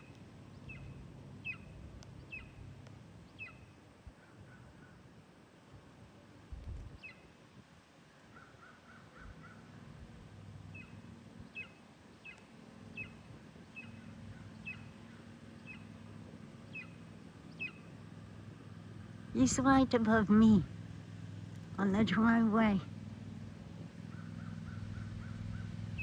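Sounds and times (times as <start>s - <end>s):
eagle calling: 0.0s - 2.6s, 3.4s - 5.0s, 10.7s - 16.0s, 16.6s - 18.0s, 24.0s - 26.0s.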